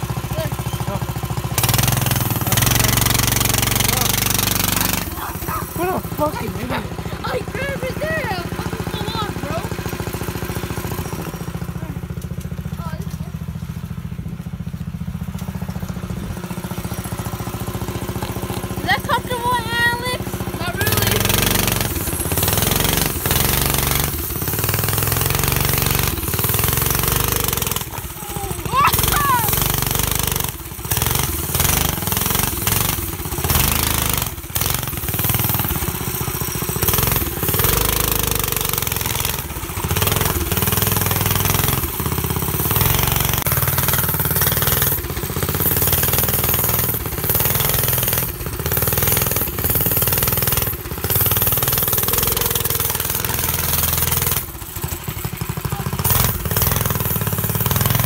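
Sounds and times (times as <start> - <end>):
go-kart engine running rough: 0.0 - 58.0.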